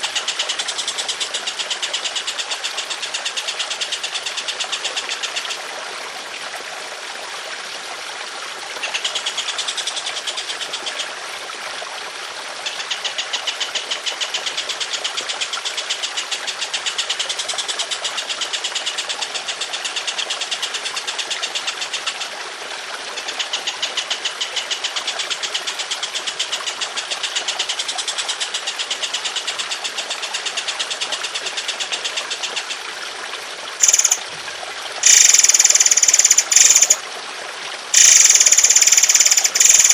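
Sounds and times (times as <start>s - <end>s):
trickling water: 0.0s - 39.9s
high-pitched bird calls: 33.8s - 34.2s, 35.0s - 37.0s, 38.0s - 39.9s
songbird singing rough notes: 33.8s - 34.2s, 35.0s - 37.0s, 38.0s - 39.9s.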